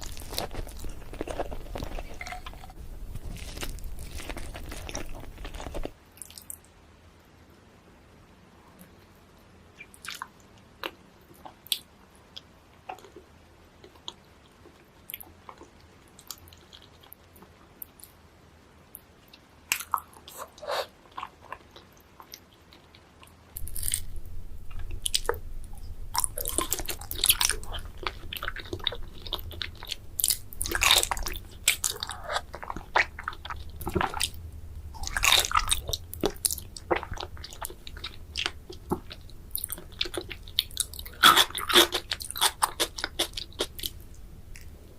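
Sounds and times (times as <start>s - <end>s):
low hum: 23.6s - 39.6s
chewing with wet mouth sounds: 24.7s - 44.8s.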